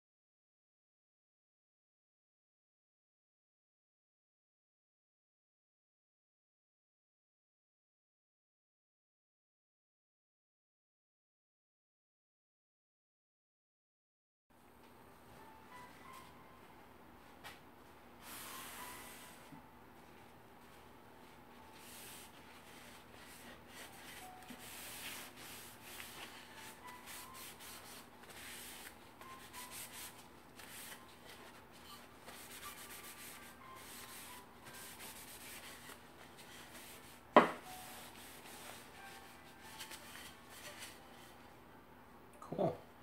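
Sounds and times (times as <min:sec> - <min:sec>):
hand sanding wood: 0:21.8 - 0:31.5, 0:32.3 - 0:40.9.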